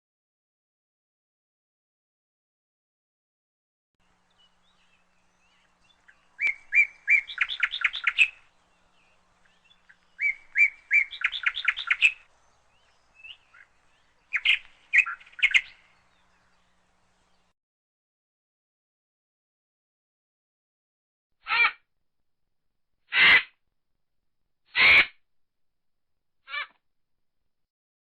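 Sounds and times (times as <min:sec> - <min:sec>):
songbird singing: 0:04.0 - 0:17.5.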